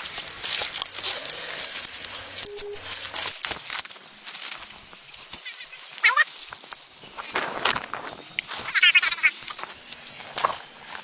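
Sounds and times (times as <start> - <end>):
rustling crinkling noise: 0.0 - 11.0
short electronic beep: 2.4 - 2.9.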